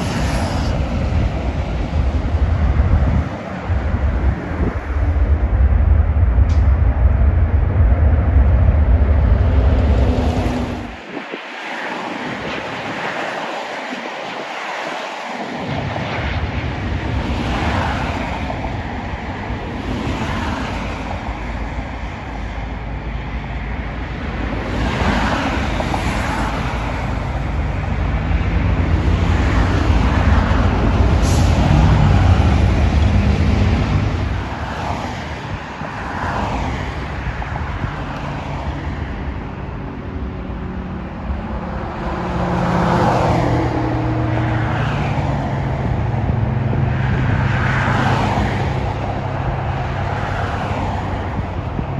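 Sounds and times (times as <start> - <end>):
low hum: 0.0 - 11.0
traffic rumble: 0.0 - 51.9.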